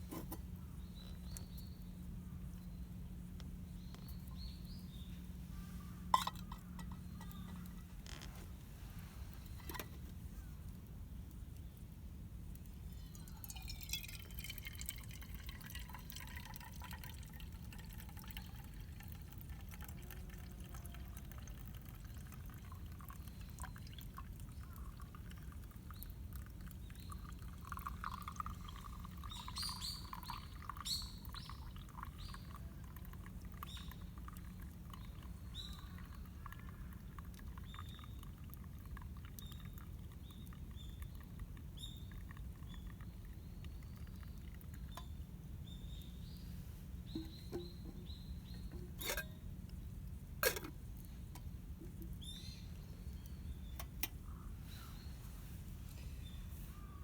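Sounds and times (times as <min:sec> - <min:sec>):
low background rumble: 0:00.0 - 0:57.0
light crackles: 0:05.3 - 0:13.2
liquid being poured: 0:06.2 - 0:08.2, 0:13.2 - 0:45.2, 0:47.1 - 0:52.3.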